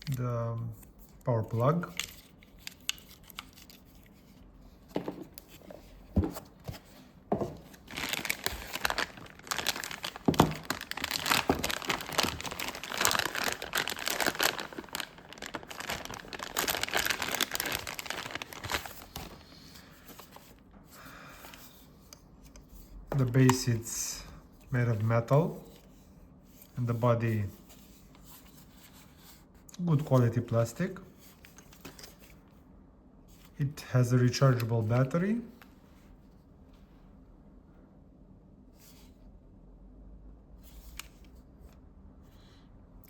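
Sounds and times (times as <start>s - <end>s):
packaging crinkling: 7.5s - 20.4s.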